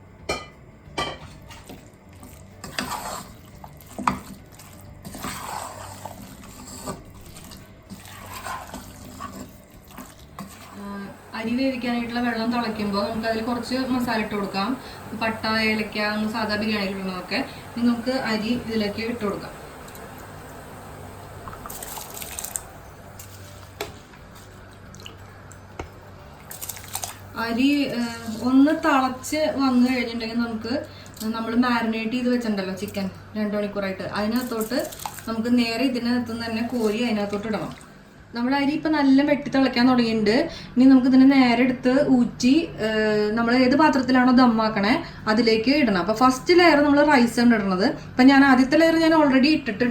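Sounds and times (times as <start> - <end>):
spoon stirring thick mixture: 1.5 - 10.8
water splashing and dripping: 21.6 - 22.7, 26.5 - 27.3.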